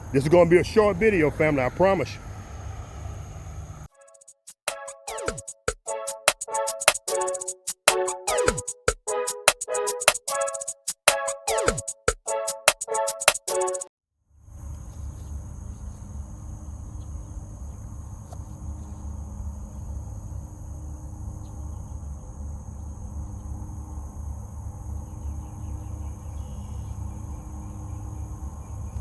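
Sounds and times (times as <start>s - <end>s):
insects droning: 0.0s - 3.9s, 14.4s - 29.0s.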